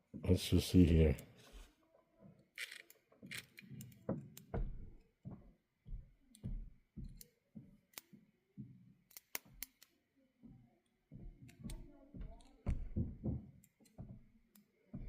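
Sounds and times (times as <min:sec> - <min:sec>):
small plastic parts clicking: 0:02.5 - 0:04.5, 0:09.1 - 0:10.0.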